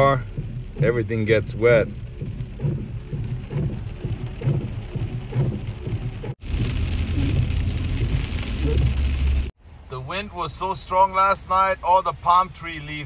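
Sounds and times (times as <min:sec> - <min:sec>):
heavy rain drumming on car roof: 0:00.0 - 0:09.6.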